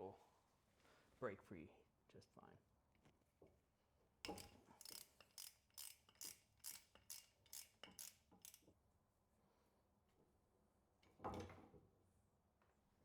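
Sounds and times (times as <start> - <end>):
ratchet wrench clicking: 4.3 - 8.6.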